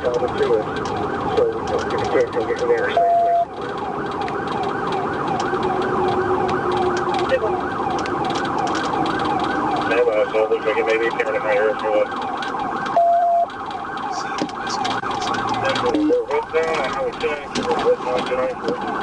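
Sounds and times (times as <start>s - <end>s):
police siren yelping: 0.0s - 19.0s
short steady beep: 3.0s - 3.5s, 13.0s - 13.5s.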